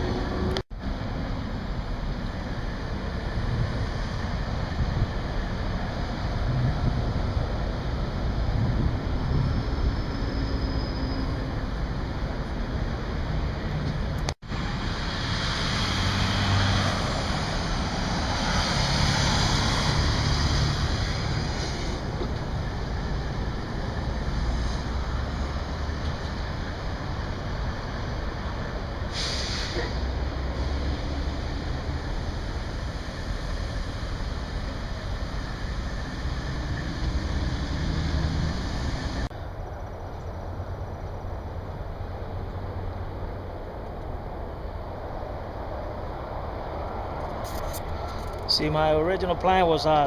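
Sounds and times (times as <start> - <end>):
highway traffic rushing hiss: 0.0 - 50.0
wind on microphone: 2.6 - 10.3.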